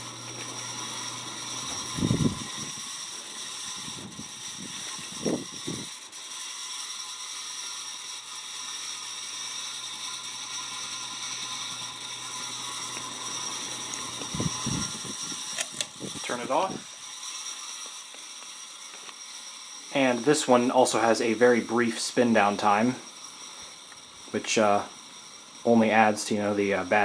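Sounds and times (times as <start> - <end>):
low motor hum: 0.0 - 6.1, 9.2 - 19.0
ceiling fan with worn bearings: 0.0 - 27.0.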